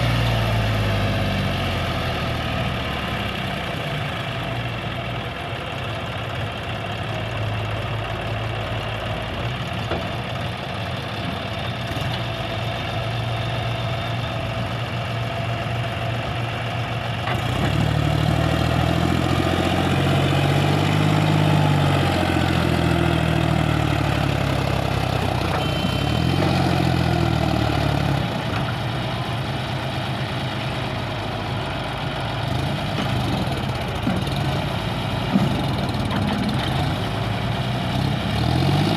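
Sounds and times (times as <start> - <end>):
heavy diesel engines running: 0.0 - 38.9.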